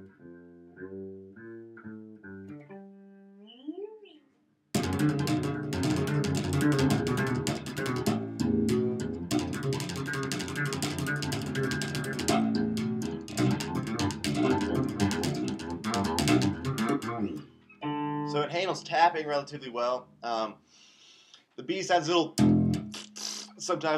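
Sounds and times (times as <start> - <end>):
electric bass tapping fast notes: 4.8 - 19.3, 22.3 - 23.0.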